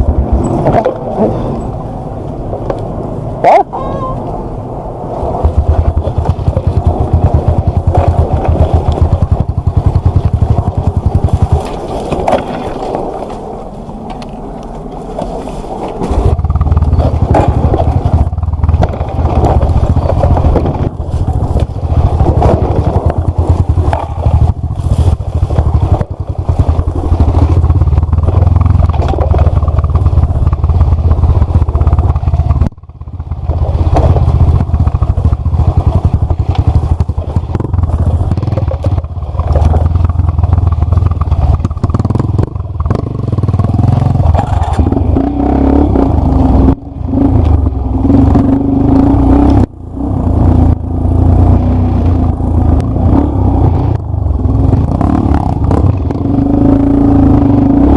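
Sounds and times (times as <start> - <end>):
dirt bike engine running hard: 0.0 - 13.6, 14.7 - 57.9
bike knocking over rough ground: 5.4 - 13.4, 14.9 - 43.0.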